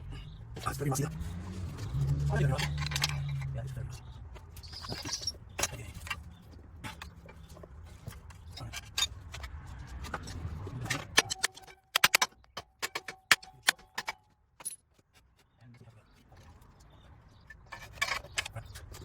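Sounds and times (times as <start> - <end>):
hand tools clinking on metal: 0.6 - 15.0, 17.4 - 19.0
sharp metallic clicks: 8.4 - 14.8.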